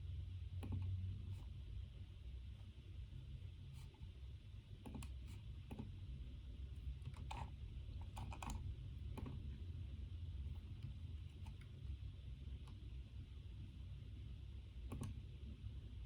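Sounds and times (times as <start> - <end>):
low room hum: 0.0 - 16.0
computer keyboard keystrokes: 0.6 - 0.9, 7.0 - 9.4, 14.8 - 15.2.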